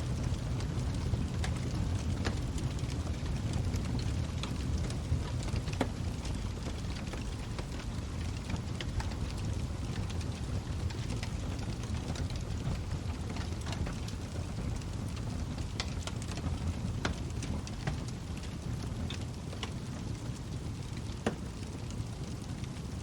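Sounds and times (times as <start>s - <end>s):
fire flames rumbling: 0.0s - 23.0s
wood crackling and popping: 0.0s - 23.0s.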